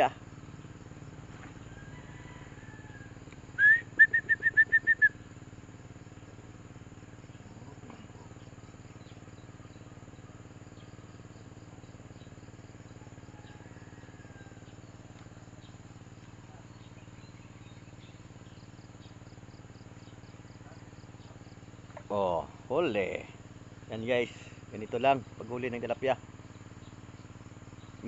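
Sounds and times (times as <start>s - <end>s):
insect buzz: 0.0s - 28.0s
bird calling with quick chirps: 3.5s - 5.2s.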